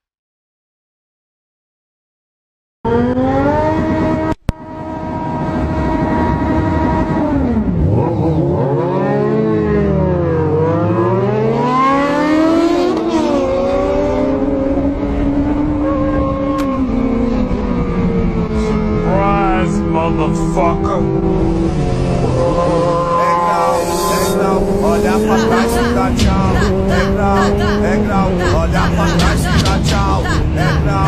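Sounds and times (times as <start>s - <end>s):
motorcycle engine running hard: 13.2s - 31.0s.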